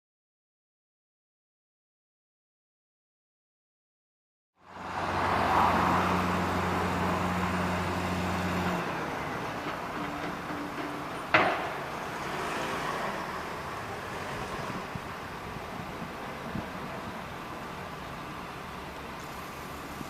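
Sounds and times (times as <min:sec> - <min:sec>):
engine hum: 0:04.6 - 0:20.0
road traffic: 0:04.6 - 0:20.0.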